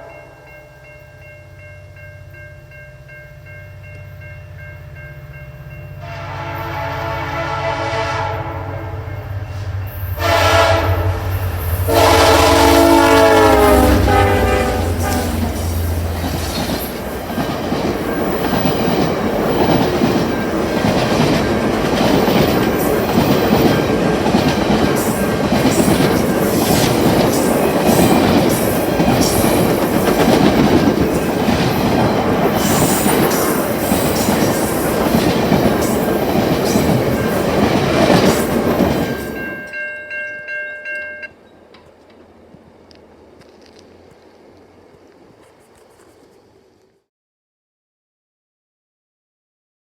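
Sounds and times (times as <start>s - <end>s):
locomotive engine rumble: 2.6s - 39.4s
locomotive horn blasts: 6.0s - 15.7s
train wheels clicking over rail joints: 14.7s - 39.8s.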